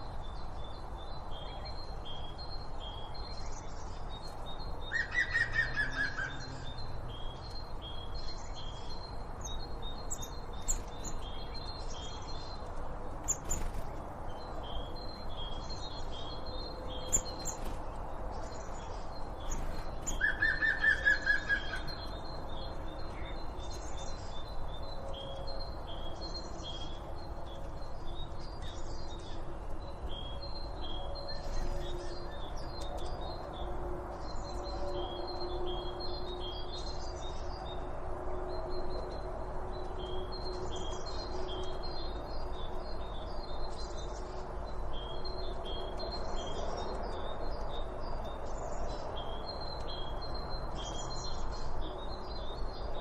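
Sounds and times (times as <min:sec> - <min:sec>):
birds chirping: 0:02.9 - 0:29.4.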